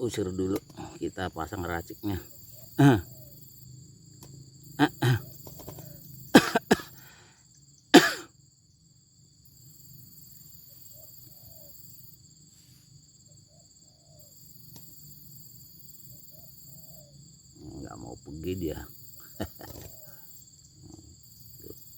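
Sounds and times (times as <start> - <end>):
insects droning: 0.0 - 21.9
person coughing sharply: 2.8 - 3.0, 4.8 - 5.3, 6.4 - 7.0, 7.9 - 8.3.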